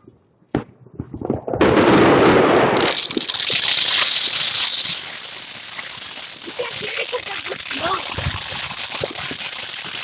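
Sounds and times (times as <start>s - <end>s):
fireworks crackling with hiss: 2.2s - 10.0s.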